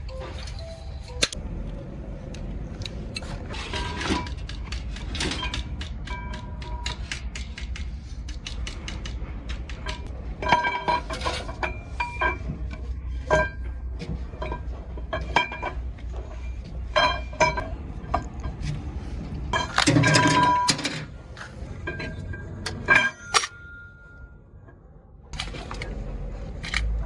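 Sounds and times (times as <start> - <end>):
low hum: 0.0 - 27.0
metal tools clinking: 19.5 - 24.3
long metallic ringing: 21.8 - 24.7.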